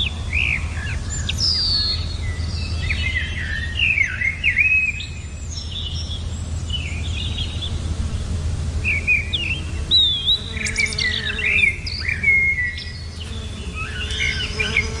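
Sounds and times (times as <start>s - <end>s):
songbirds chirping and singing: 0.0s - 15.0s
steady low rumble: 0.0s - 15.0s.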